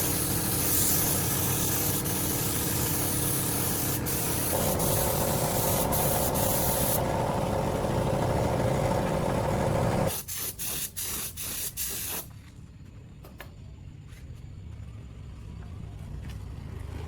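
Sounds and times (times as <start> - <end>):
compressed air hissing: 0.0 - 12.3.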